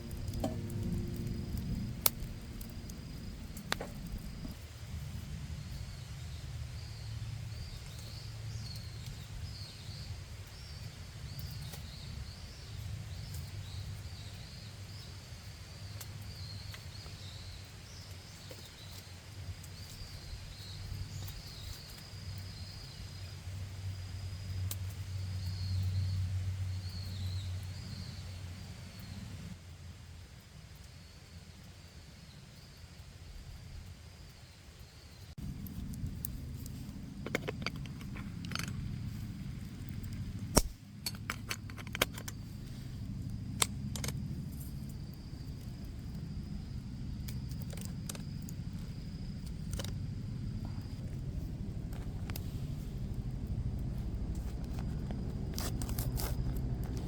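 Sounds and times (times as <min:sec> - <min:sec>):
steady low rumble: 0:00.0 - 0:17.6, 0:35.3 - 0:57.0
night insects chirping: 0:00.0 - 0:57.0
sharp cracks: 0:39.8 - 0:42.3.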